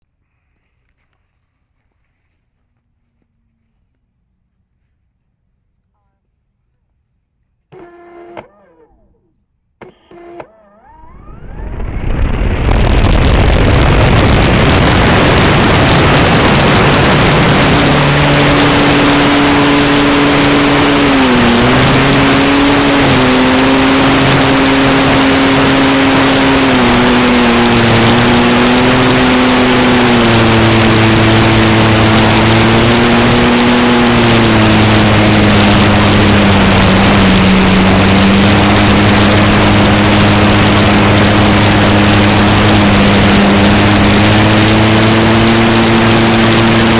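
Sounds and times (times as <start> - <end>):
electric motor and propeller hum: 7.7 - 46.9
heavy wind noise on microphone: 10.9 - 46.9.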